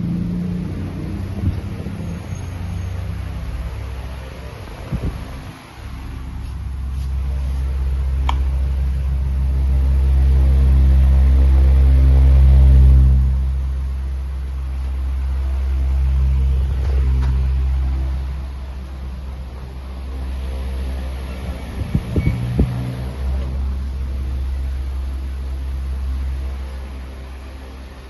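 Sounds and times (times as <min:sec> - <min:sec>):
pedestal fan humming: 0:00.0 - 0:28.0.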